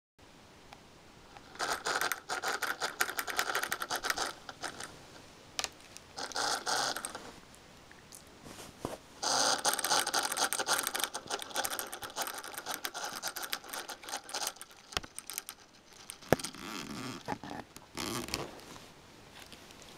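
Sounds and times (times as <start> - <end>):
laptop fan scraping rattle: 1.5 - 5.0, 6.2 - 7.4, 9.2 - 18.5.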